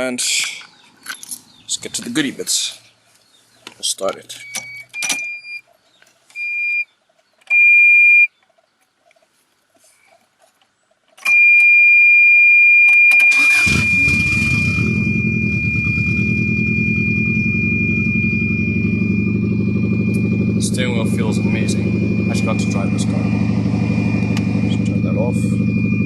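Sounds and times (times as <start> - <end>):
high electronic beeps: 13.1 - 26.0
car engine idling loudly: 13.6 - 26.0.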